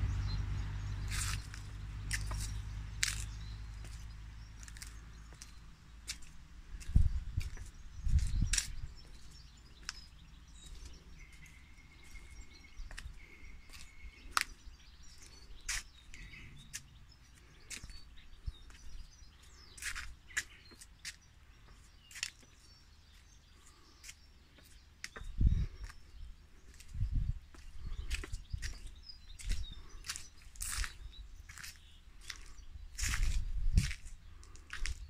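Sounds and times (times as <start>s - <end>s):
low steady rumble: 0.0s - 8.5s
bird chirps and clicks: 1.0s - 26.1s.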